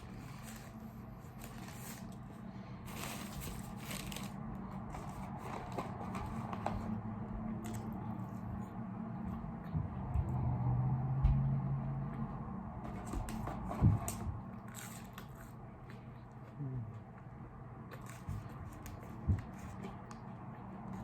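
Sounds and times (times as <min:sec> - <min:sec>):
low steady hum: 0:00.0 - 0:21.0
chewing food: 0:13.3 - 0:21.0.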